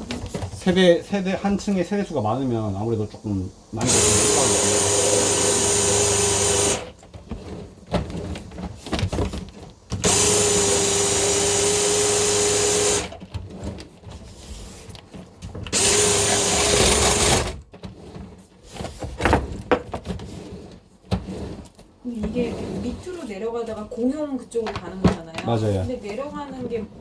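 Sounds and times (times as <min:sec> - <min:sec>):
drain-cleaning machine motor running: 0:03.8 - 0:06.9, 0:10.0 - 0:13.1, 0:15.7 - 0:17.5
knocking and clatter: 0:16.7 - 0:20.3.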